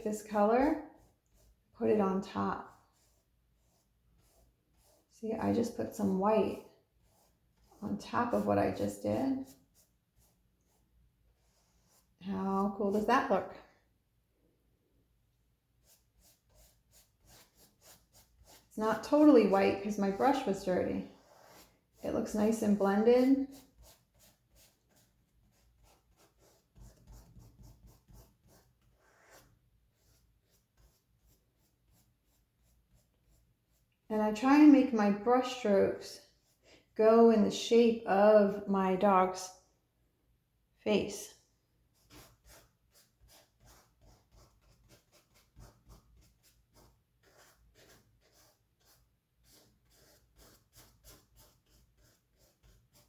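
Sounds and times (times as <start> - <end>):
paintbrush scratching on canvas: 0.0 - 13.6, 15.7 - 37.0, 41.9 - 53.0.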